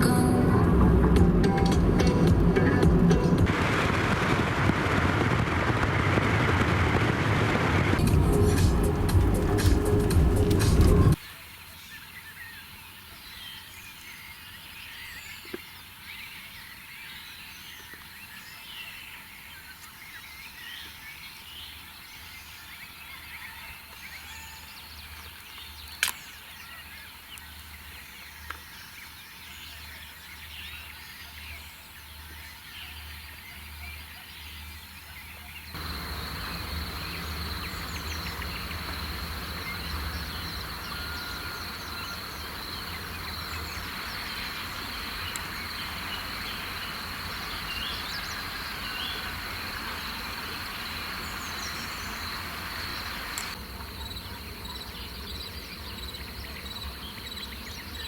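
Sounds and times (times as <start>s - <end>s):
faint bird chirps: 11.2s - 58.0s
hiss: 35.8s - 53.6s
high insect trill: 35.8s - 57.6s.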